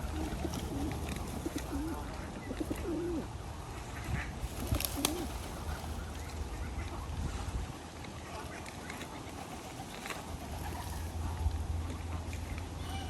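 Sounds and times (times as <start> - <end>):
pigeons cooing: 0.0 - 3.4, 4.4 - 6.8
steady low rumble: 10.3 - 13.0.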